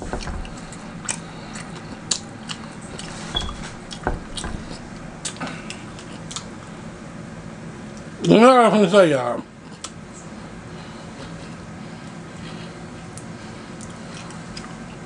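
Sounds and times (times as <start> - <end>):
chewing and mouth sounds: 5.2 - 6.6, 13.2 - 15.0.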